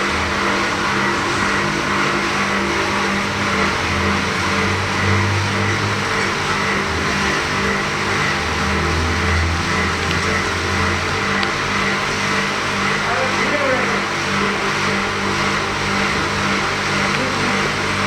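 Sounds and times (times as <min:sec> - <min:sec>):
pressure washer motor hum: 0:00.0 - 0:18.0.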